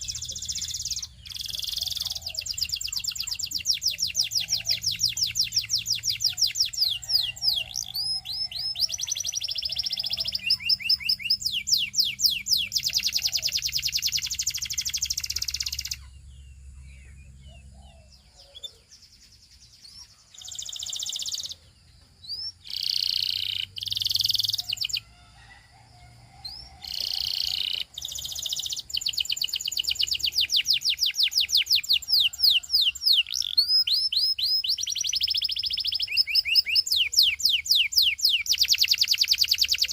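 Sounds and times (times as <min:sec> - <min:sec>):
canary trilling: 0:00.0 - 0:16.2, 0:20.2 - 0:21.6, 0:22.3 - 0:25.2, 0:26.5 - 0:39.9.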